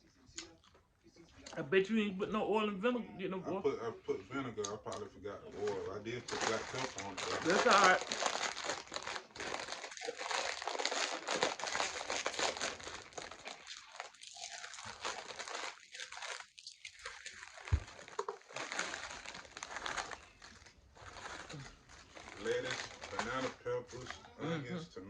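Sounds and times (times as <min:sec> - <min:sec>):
food wrapper crinkling: 0:04.9 - 0:24.2.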